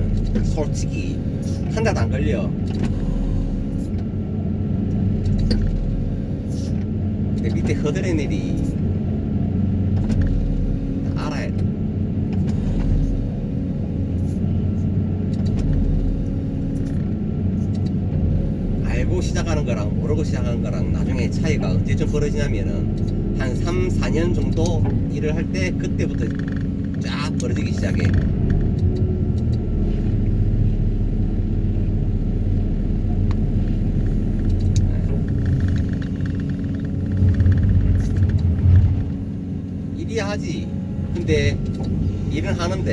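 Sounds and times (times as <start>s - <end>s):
excavator engine droning: 0.0s - 42.9s
pile hammer low rumble: 18.0s - 42.9s.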